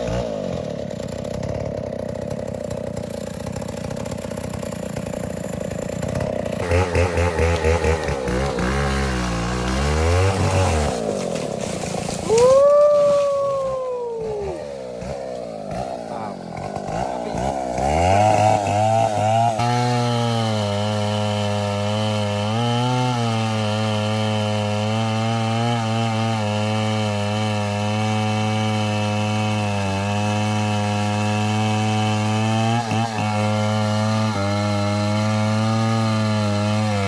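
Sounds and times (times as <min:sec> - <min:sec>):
chainsaw cutting wood: 0:00.0 - 0:37.0.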